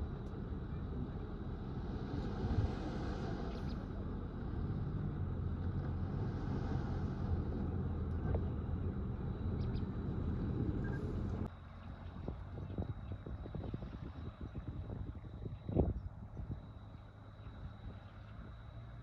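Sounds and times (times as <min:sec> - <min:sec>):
bulldozer diesel engine rumbling: 0:00.0 - 0:19.0.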